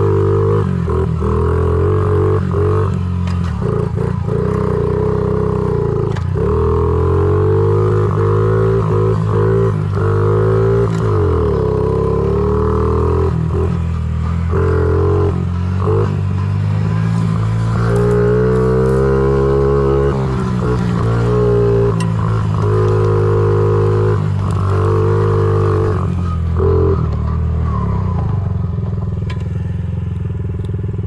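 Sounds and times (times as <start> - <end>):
small motorbike engine running: 10.5 - 27.5.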